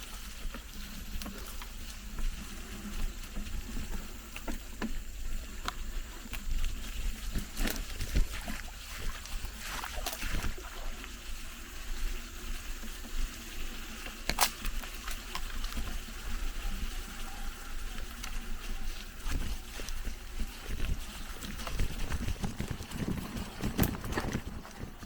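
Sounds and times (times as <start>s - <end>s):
wind rumble on microphone: 15.6s - 25.0s
bike knocks and rattles: 18.9s - 25.0s.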